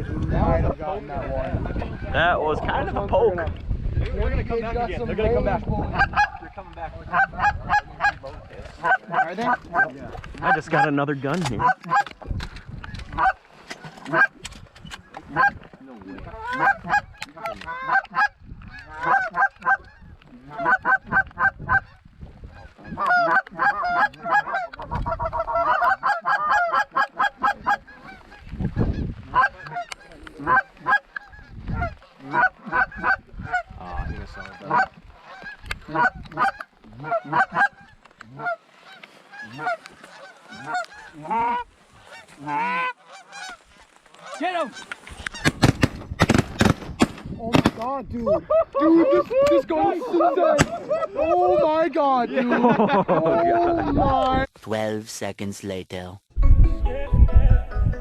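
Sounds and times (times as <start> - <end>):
geese honking: 5.8 - 6.4, 7.0 - 12.2, 12.8 - 14.4, 15.0 - 15.6, 16.4 - 47.7.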